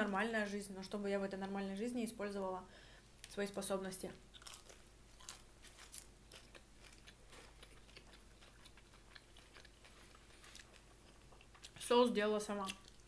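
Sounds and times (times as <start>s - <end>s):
person chewing: 4.3s - 11.8s, 12.6s - 13.0s.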